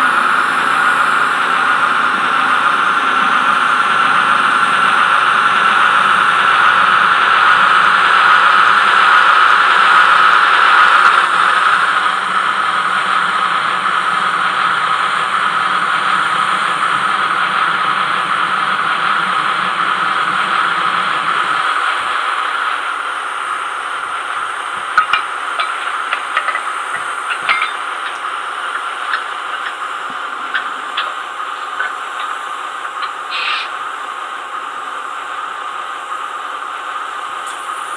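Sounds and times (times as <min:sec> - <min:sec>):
diesel engine sound from small speaker: 0:00.0 - 0:37.9
low hum: 0:10.9 - 0:36.8
hiss: 0:19.3 - 0:37.9.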